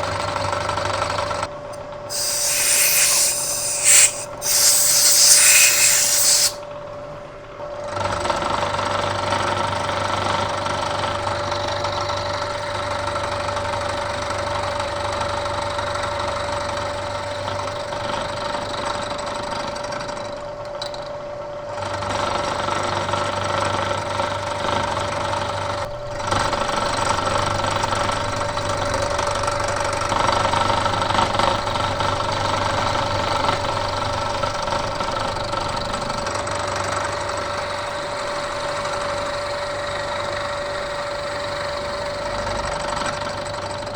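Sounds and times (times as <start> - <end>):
milling machine cutting metal: 2.1 - 6.6.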